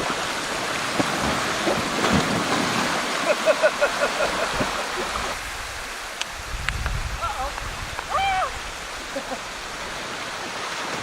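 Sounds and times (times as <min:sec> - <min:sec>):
water rushing down rock slide: 0:00.0 - 0:11.0.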